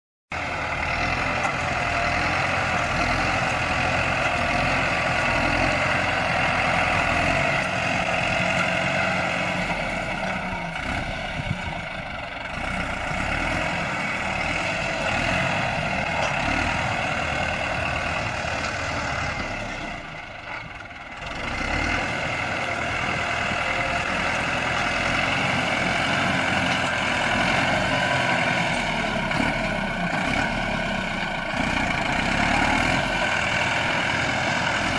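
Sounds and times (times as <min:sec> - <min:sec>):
bulldozer diesel engine running: 0:00.3 - 0:34.9.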